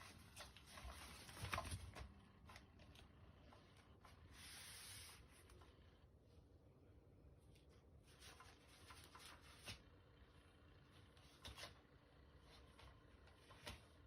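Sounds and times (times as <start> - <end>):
faint scratching and rubbing: 4.1 - 5.8.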